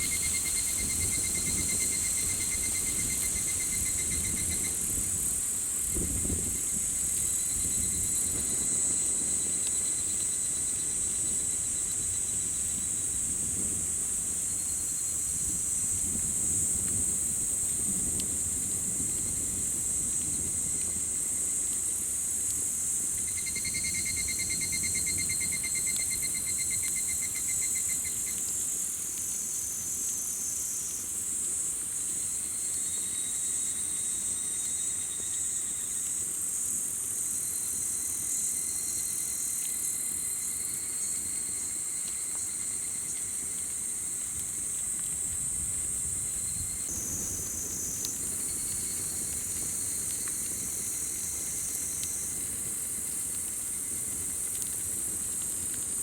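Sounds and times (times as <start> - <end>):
insect pulsing trill: 0.0 - 5.0, 23.1 - 28.4
campfire burning: 0.0 - 56.0
faint fire crackles: 0.0 - 56.0
insects chorus: 0.0 - 56.0.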